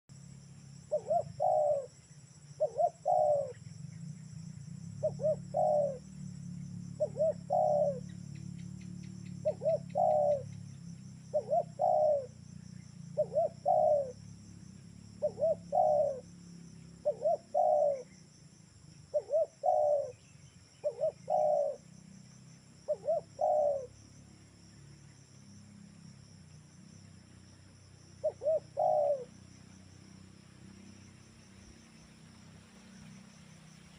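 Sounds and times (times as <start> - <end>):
insects droning: 0.1 - 33.9
dove cooing: 0.9 - 1.9, 2.6 - 3.6, 5.0 - 6.1, 6.9 - 8.4, 9.4 - 10.6, 11.3 - 12.4, 13.1 - 14.3, 15.2 - 16.3, 17.0 - 18.2, 19.1 - 21.8, 22.8 - 23.9, 28.2 - 29.3.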